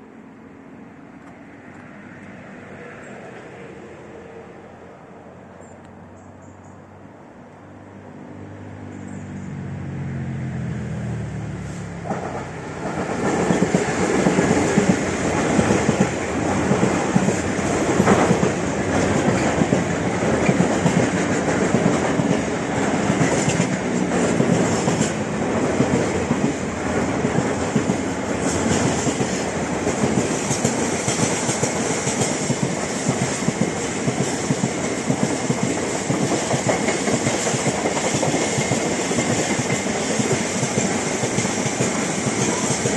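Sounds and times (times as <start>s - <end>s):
train wheels clattering on track: 12.0s - 42.9s.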